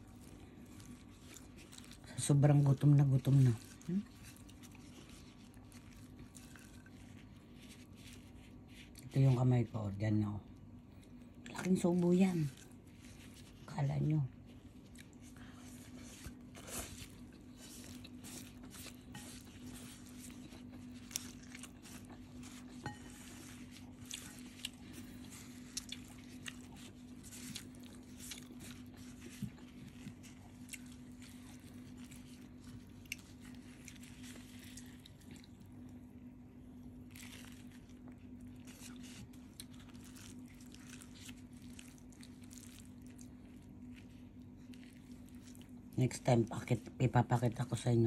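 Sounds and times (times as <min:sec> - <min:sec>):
wet chewing of noodles: 0:00.0 - 0:47.8.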